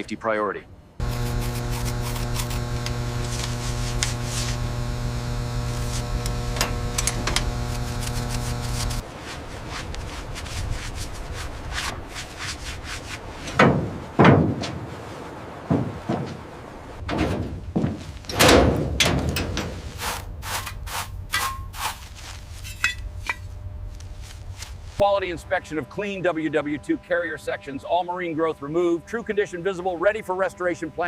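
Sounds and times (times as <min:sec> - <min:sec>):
steady machine hum: 0:01.0 - 0:09.1
scraping and rubbing strokes: 0:01.0 - 0:13.6, 0:19.7 - 0:25.0.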